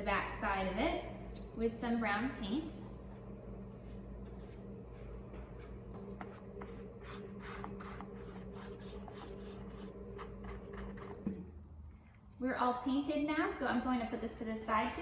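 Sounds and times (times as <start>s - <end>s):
paintbrush strokes on paper plate: 6.2s - 11.1s.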